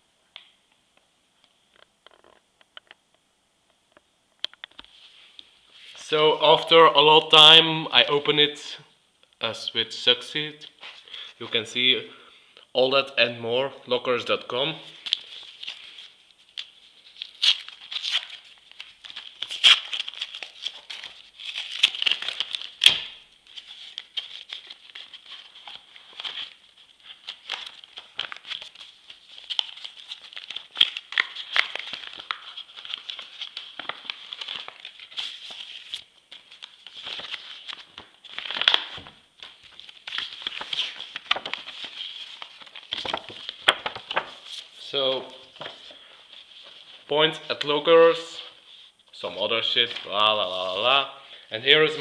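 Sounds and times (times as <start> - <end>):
packaging crinkling and rustling: 15.0 - 47.1.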